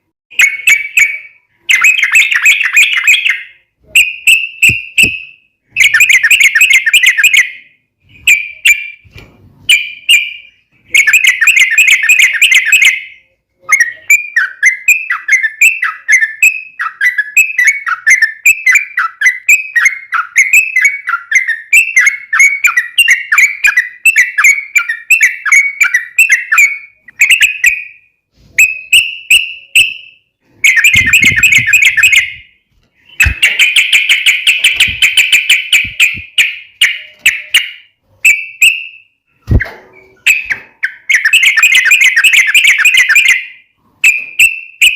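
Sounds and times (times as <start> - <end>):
bird singing bubbling whistles: 30.6 - 32.5, 33.1 - 38.8.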